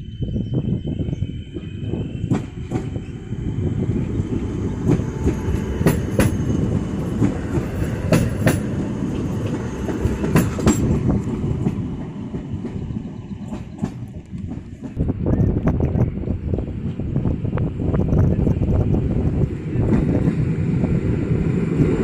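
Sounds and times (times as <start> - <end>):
train rumbling past: 0.0 - 22.0
wheels clicking over rail joints: 4.8 - 12.8.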